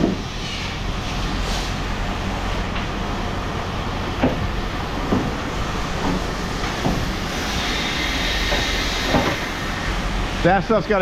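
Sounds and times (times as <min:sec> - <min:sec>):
machinery rumbling: 0:00.0 - 0:11.0.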